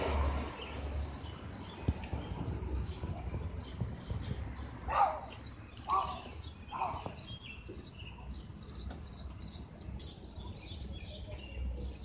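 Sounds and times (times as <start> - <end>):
small birds chirping: 0.1 - 12.0.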